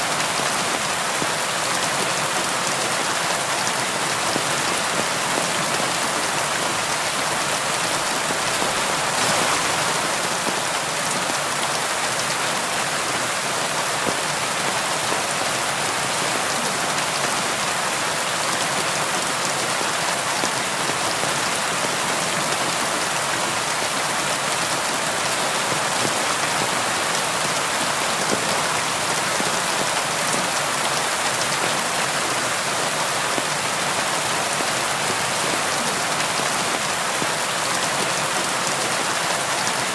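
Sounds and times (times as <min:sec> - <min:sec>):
rain pattering on a window: 0:00.1 - 0:39.9.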